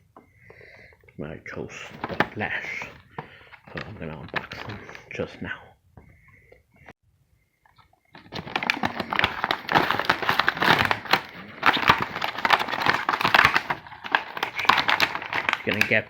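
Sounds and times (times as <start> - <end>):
plastic packaging crinkling: 1.8 - 5.0, 8.1 - 16.0.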